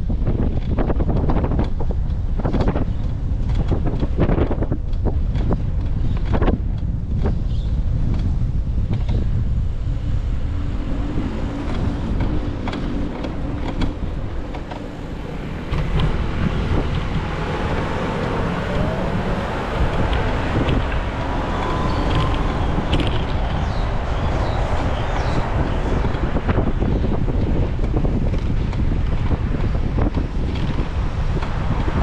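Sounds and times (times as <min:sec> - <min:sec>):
wind buffeting microphone: 0:00.0 - 0:32.0
rushing noise: 0:09.3 - 0:32.0.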